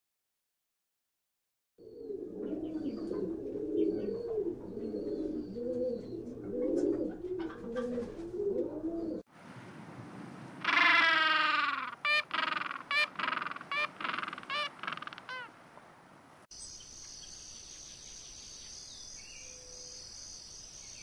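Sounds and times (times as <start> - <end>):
pigeons cooing: 1.8 - 9.2, 10.6 - 15.5.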